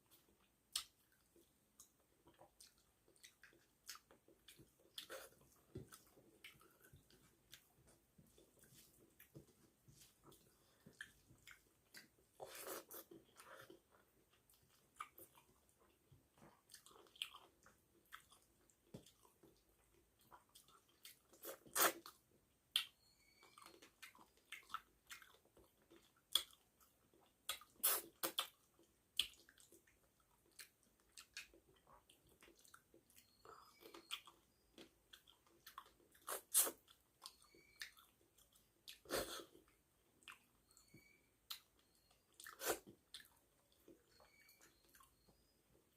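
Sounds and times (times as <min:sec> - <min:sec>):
person chewing with lip smacks: 0:00.7 - 0:01.2, 0:23.6 - 0:45.2.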